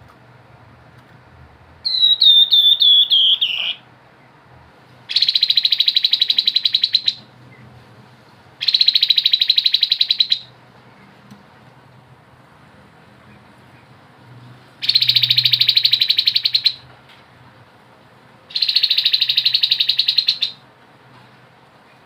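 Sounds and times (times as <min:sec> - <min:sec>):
bird whistled notes: 0:01.9 - 0:03.8, 0:05.1 - 0:07.2, 0:14.8 - 0:16.8, 0:18.5 - 0:20.6
bird rattling trills: 0:05.1 - 0:07.2, 0:14.8 - 0:16.8, 0:18.5 - 0:20.6.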